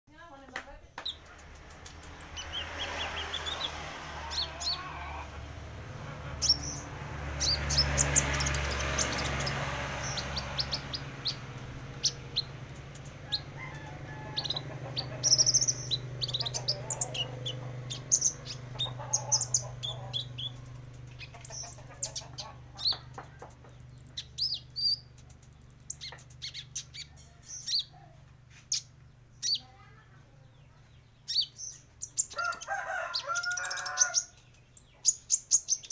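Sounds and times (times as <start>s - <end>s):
young bird chirping and trilling: 6.4s - 29.8s, 30.8s - 35.9s.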